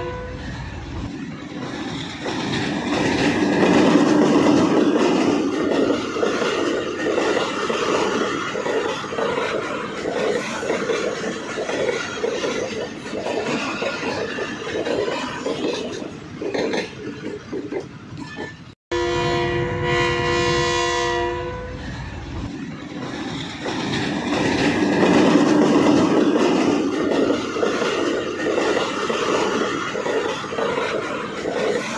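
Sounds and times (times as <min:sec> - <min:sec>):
locomotive horn blast: 0:00.0 - 0:00.4, 0:18.9 - 0:21.8
train running rumble: 0:00.0 - 0:31.9
train wheels clicking over rail joints: 0:00.4 - 0:18.8, 0:21.9 - 0:31.9.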